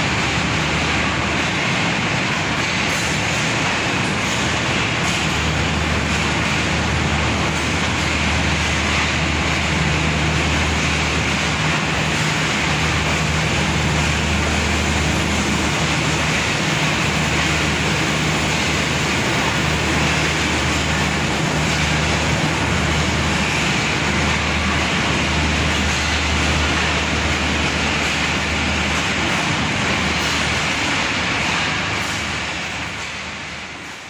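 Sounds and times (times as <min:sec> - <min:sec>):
train coaches rumbling and hissing: 0:00.0 - 0:34.0.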